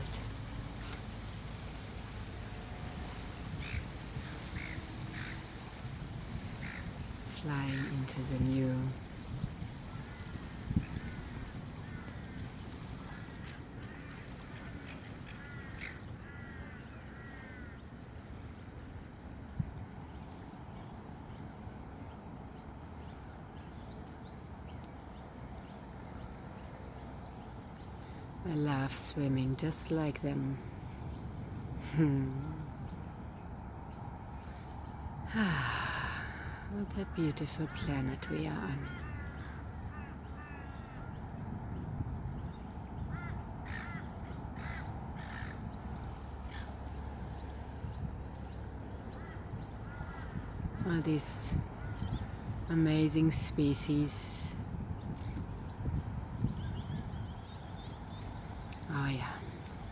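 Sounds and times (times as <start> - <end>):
low outdoor rumble: 0.0 - 17.9
small birds chirping: 36.2 - 59.9.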